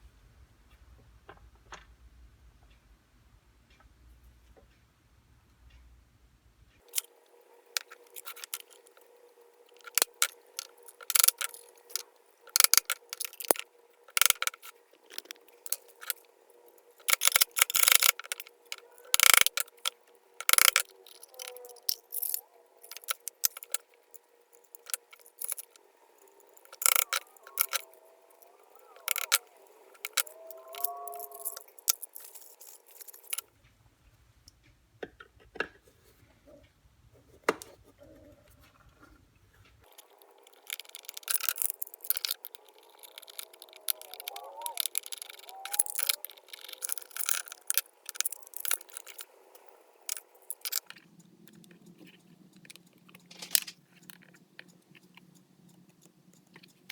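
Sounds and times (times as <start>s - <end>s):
metal parts and tools clinking: 6.9s - 9.1s, 9.7s - 33.5s, 39.8s - 55.2s.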